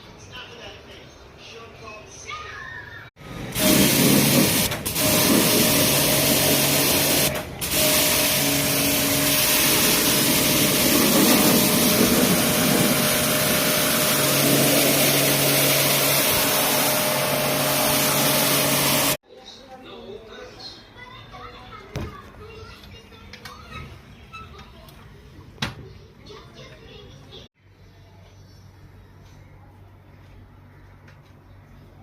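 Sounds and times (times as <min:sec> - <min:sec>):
pressure washer motor hum: 0:03.2 - 0:19.2
water spray hissing: 0:03.5 - 0:19.2.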